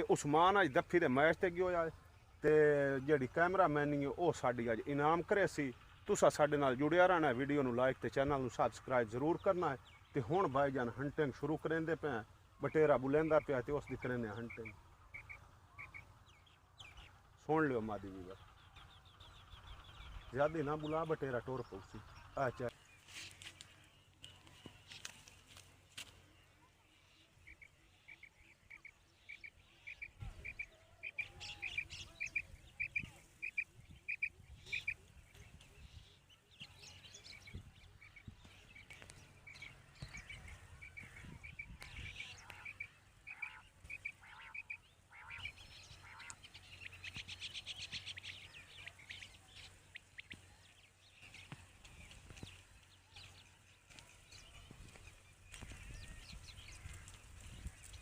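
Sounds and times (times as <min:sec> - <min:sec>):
quail calling: 0:08.2 - 0:17.3, 0:27.4 - 0:35.1, 0:36.6 - 0:58.0.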